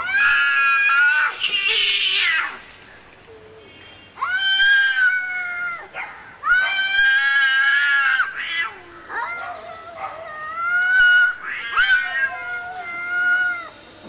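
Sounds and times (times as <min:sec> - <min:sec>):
angry cat yowling: 0:04.2 - 0:13.7.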